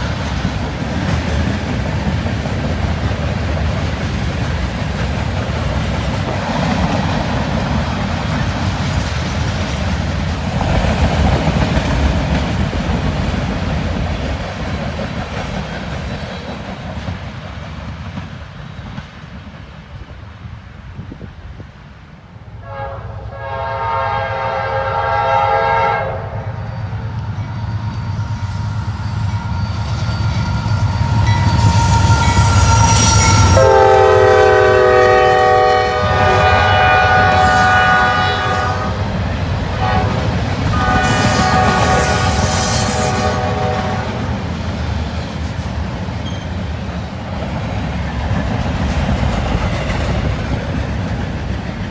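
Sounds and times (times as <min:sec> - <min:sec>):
train rumble and wind noise: 0:00.0 - 0:51.9
locomotive air horn: 0:22.6 - 0:26.7, 0:31.5 - 0:39.0, 0:39.8 - 0:44.3.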